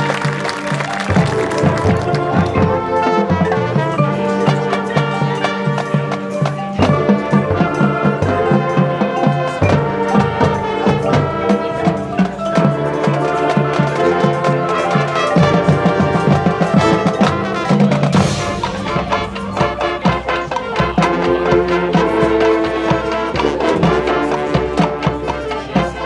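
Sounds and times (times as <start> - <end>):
drum line beat: 0.0 - 2.5
marching band playing: 0.0 - 2.6.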